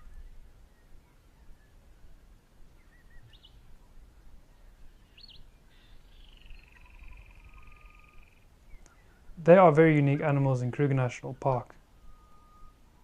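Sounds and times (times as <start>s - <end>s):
long bird trill: 5.8s - 8.5s, 11.8s - 13.0s.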